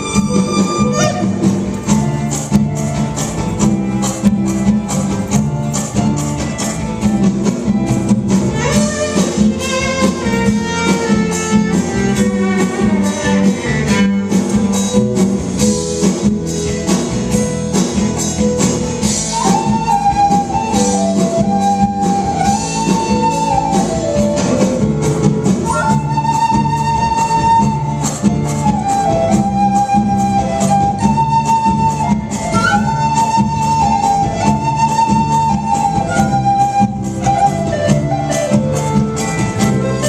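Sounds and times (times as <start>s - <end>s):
fiddle melody: 0.0s - 15.1s
low accompaniment: 0.0s - 40.0s
percussion beat: 0.0s - 40.0s.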